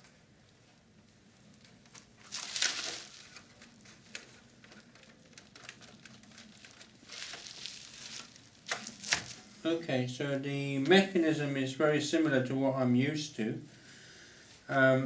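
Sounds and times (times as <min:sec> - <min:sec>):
rustling scrape: 0:02.0 - 0:09.7.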